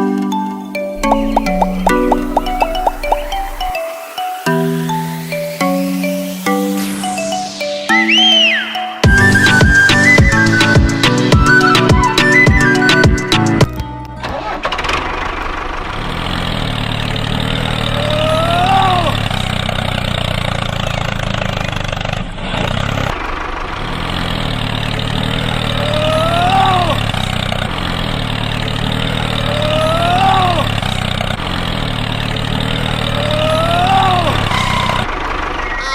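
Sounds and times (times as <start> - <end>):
tractor engine idling: 1.0 - 3.9, 14.7 - 35.8
short rising-falling squeal: 34.2 - 35.9.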